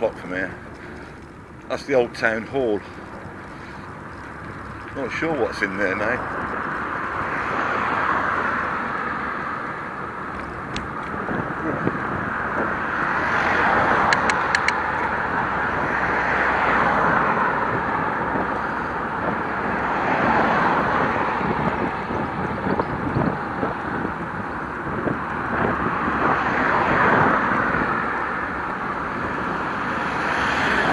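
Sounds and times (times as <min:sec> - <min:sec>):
cars passing: 0:00.0 - 0:30.9
sharp clicks: 0:10.3 - 0:11.2, 0:13.9 - 0:15.2.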